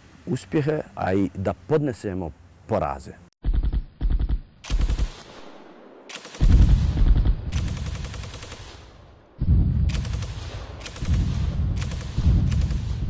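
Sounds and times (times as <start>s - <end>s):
automatic gunfire echoing: 4.6s - 9.3s, 9.9s - 13.0s.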